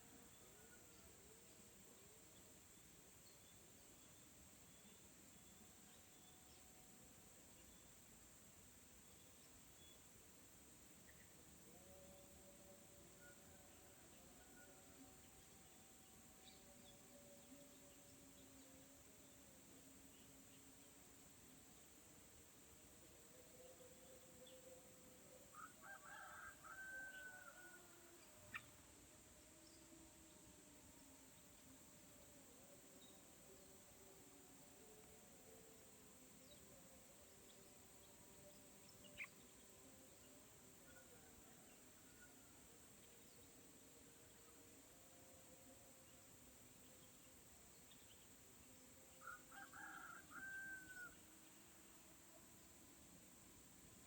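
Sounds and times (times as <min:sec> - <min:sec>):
low background hiss: 0:00.0 - 0:54.0
rooster crowing: 0:25.5 - 0:28.3, 0:49.2 - 0:51.2.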